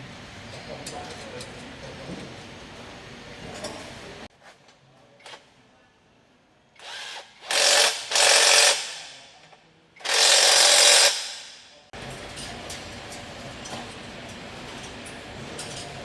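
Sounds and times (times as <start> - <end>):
power tool bursts: 6.8 - 9.2, 10.0 - 11.7.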